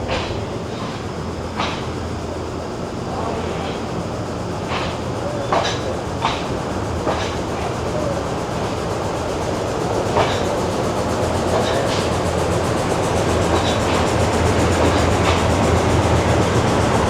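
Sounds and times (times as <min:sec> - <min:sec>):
train rumbling on rails: 0:00.0 - 0:17.0.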